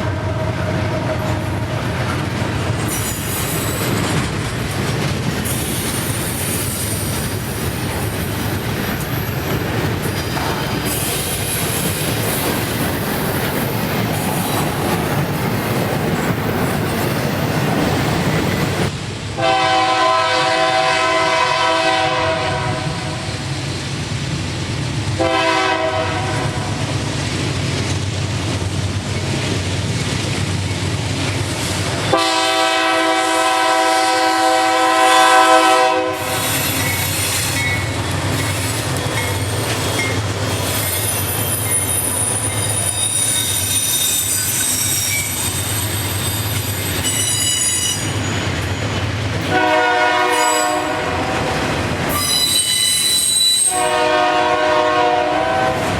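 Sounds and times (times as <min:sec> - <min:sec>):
train rumble: 0:00.0 - 0:55.9
wheels squealing on rails: 0:00.8 - 0:18.9, 0:30.5 - 0:55.9
locomotive horn blasts: 0:19.4 - 0:23.3, 0:25.2 - 0:26.7, 0:32.1 - 0:36.6, 0:49.5 - 0:51.5, 0:52.2 - 0:55.9.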